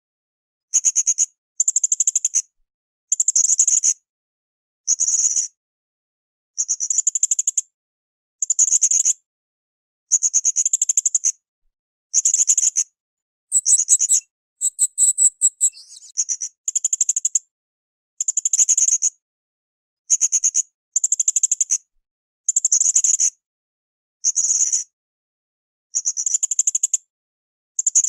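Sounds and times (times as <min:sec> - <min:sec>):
parrot high trilled calls: 0:13.5 - 0:16.1.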